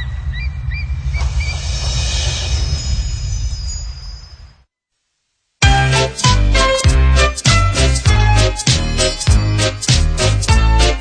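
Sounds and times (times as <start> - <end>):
steady low rumble: 0.0 - 4.4
rushing noise: 0.0 - 4.7.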